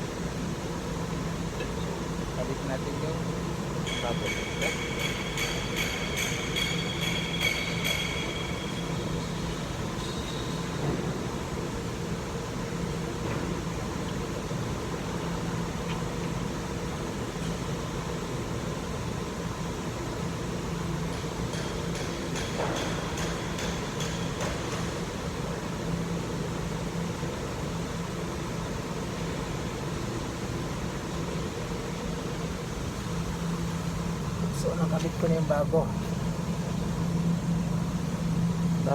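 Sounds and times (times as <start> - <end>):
low mechanical hum: 0.0 - 38.9.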